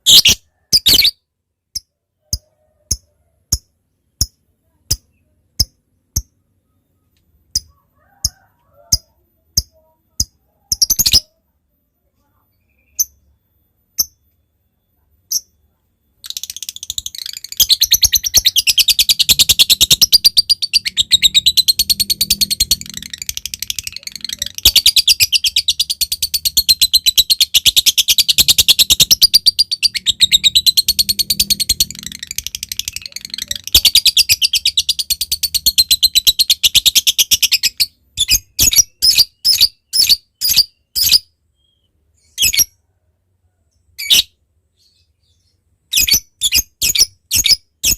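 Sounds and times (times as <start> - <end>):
lovebird chattering trill: 0.0 - 1.2, 16.2 - 41.2
sharp bird chirps: 0.0 - 8.4, 12.5 - 42.8.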